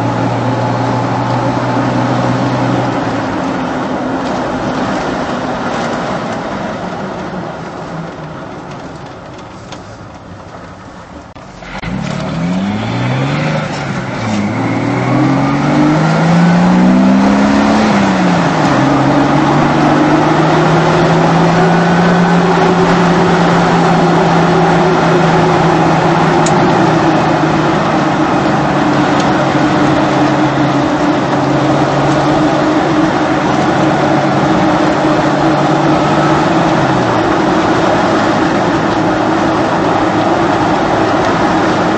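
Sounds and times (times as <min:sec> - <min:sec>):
car engine exhaust note: 0:11.4 - 0:41.9.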